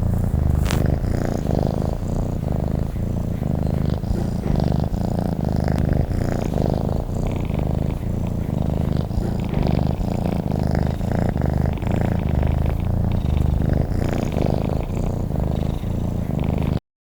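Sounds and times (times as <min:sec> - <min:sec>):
cat purring: 0:00.0 - 0:16.8.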